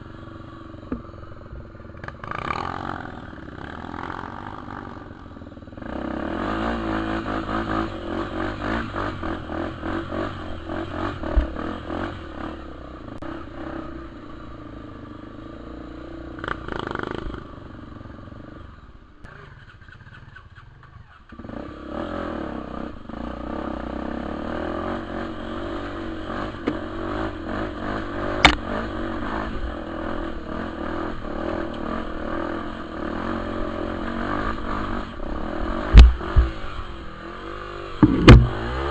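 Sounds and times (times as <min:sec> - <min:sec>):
dirt bike engine revving: 0:02.0 - 0:05.1, 0:05.8 - 0:14.2, 0:21.3 - 0:38.9
sharp knocks: 0:35.9 - 0:36.6, 0:38.0 - 0:38.7.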